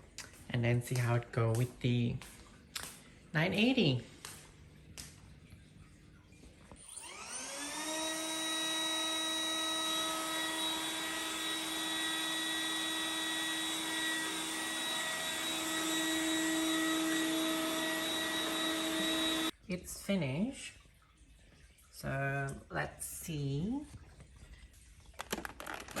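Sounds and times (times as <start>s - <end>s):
vacuum cleaner motor whine: 6.8s - 19.5s.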